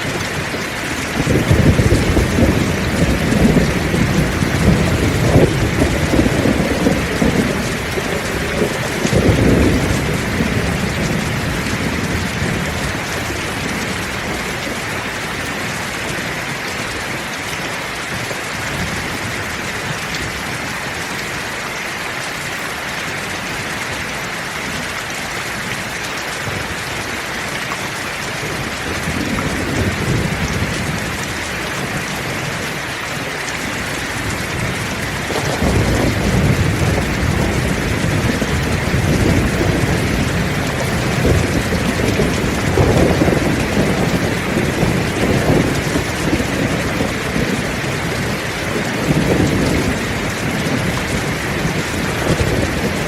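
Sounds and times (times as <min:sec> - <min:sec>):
rolling thunder: 0:00.0 - 0:16.0, 0:28.4 - 0:32.8, 0:33.8 - 0:53.0
heavy rain: 0:00.0 - 0:53.0.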